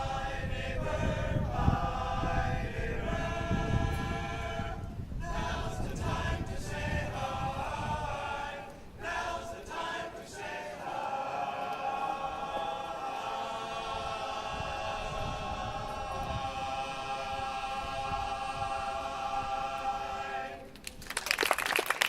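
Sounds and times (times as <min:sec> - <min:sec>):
male a cappella chorus singing: 0:00.0 - 0:20.7
audience applause: 0:20.8 - 0:22.0.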